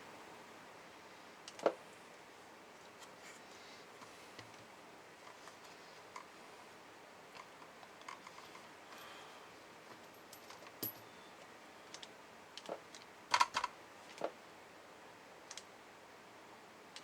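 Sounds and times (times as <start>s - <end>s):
small parts and tools clicking: 7.3s - 9.0s.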